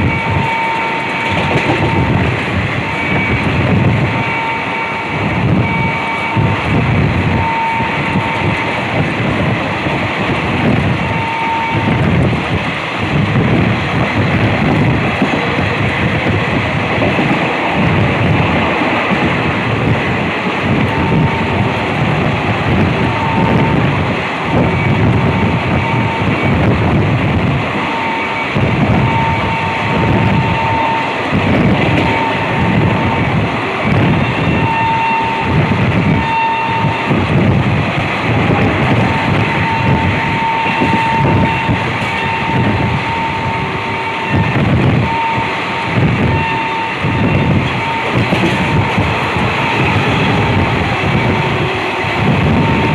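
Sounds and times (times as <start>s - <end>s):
train wheels rumbling on rails: 0.0s - 52.9s
wind rushing past microphone: 0.0s - 52.9s
thin high whine: 38.2s - 52.9s.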